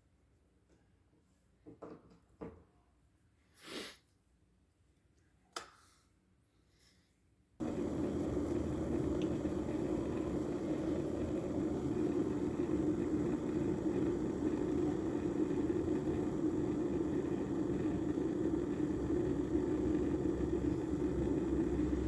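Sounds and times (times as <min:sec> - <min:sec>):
electric kettle heating water: 0:07.6 - 0:22.0.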